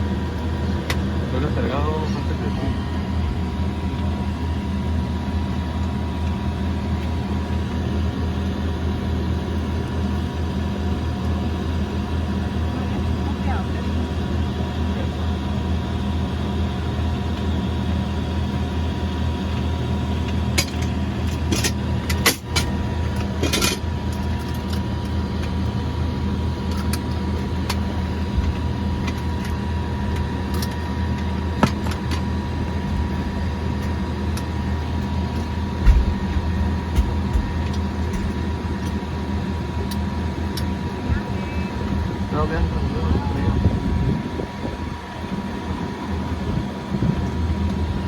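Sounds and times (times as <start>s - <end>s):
turboprop engine drone and whine: 0.0s - 48.0s
low thump: 35.8s - 36.5s.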